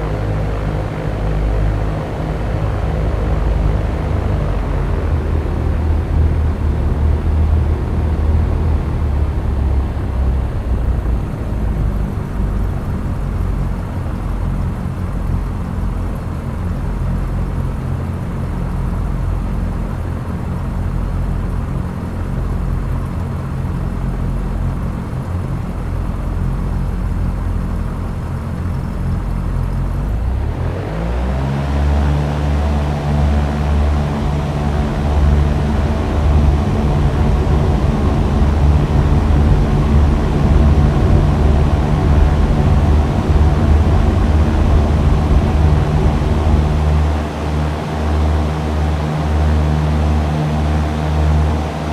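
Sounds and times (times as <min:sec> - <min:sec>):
airplane engine and propeller drone: 0:00.0 - 0:51.9.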